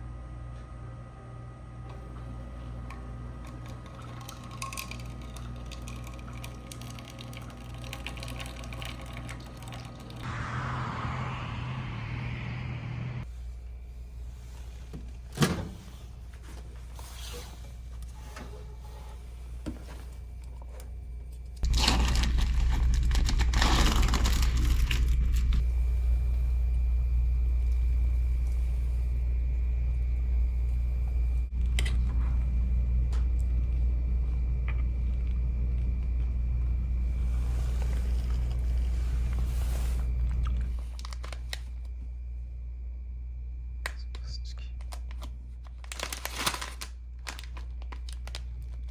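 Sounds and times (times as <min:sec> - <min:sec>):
microwave oven humming: 0:00.0 - 0:17.0, 0:17.6 - 0:48.9
rustling and crinkling: 0:44.8 - 0:48.9.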